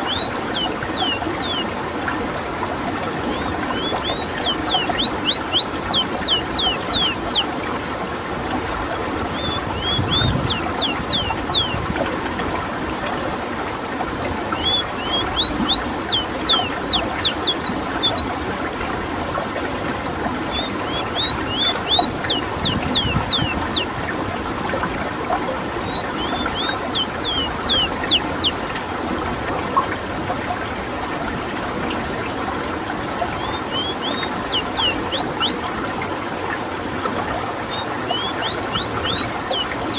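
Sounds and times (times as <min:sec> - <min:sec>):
bird singing sharp notes: 0:00.0 - 0:01.7, 0:03.3 - 0:07.5, 0:09.4 - 0:11.8, 0:14.5 - 0:18.4, 0:20.5 - 0:23.9, 0:25.9 - 0:28.6, 0:33.4 - 0:35.6, 0:37.7 - 0:39.9.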